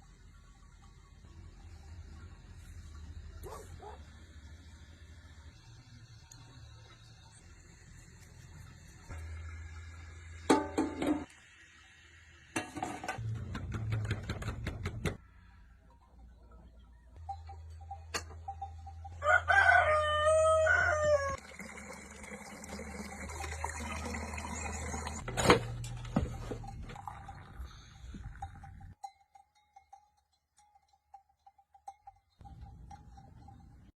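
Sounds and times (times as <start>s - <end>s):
rooster crowing: 19.2s - 21.4s.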